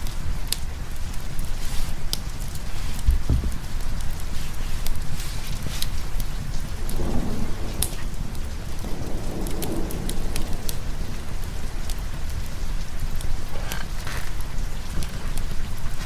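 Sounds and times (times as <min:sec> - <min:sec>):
steady rain: 0:00.0 - 0:16.0
rolling thunder rumble: 0:02.3 - 0:16.0.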